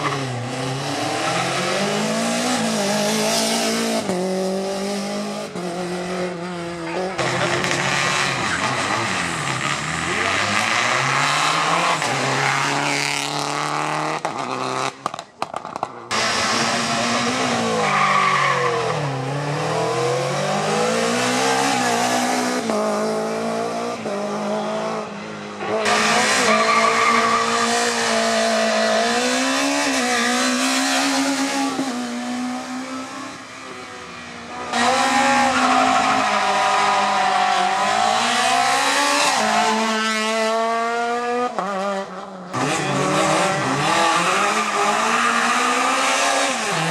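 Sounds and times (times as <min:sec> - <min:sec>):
rally car engines revving: 0:00.0 - 0:46.9.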